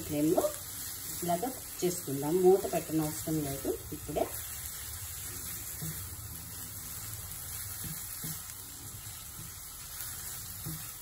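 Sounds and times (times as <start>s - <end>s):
meat sizzling in a pan: 0.0s - 11.0s
spatula scraping a pan: 4.2s - 11.0s.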